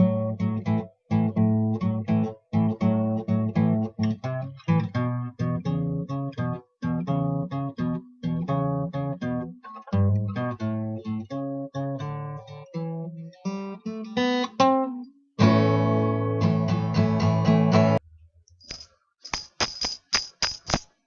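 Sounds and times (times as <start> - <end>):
acoustic guitar playing: 0.0 - 18.1
sharp percussive hits: 18.6 - 21.0.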